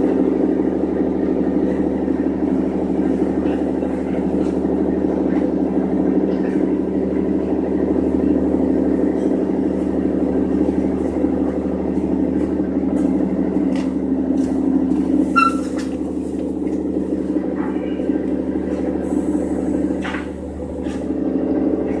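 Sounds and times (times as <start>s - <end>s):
large engine idling: 0.0s - 22.0s
short high squeak: 15.3s - 15.9s.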